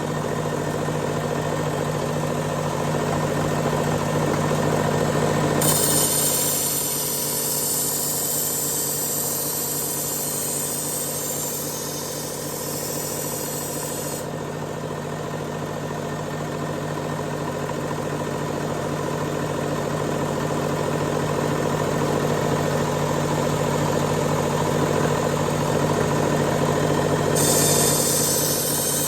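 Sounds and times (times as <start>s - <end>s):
belt knife sharpener grinding: 5.6s - 14.3s, 27.4s - 29.0s
high hiss: 5.6s - 14.3s, 27.4s - 29.0s.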